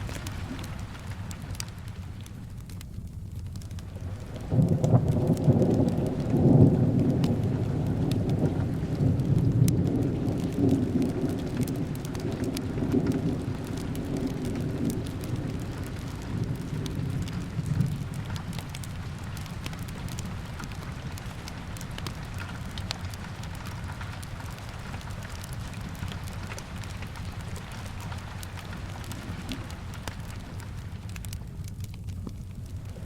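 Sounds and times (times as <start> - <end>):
steady rain: 0.0 - 33.0
rolling thunder: 4.2 - 22.7.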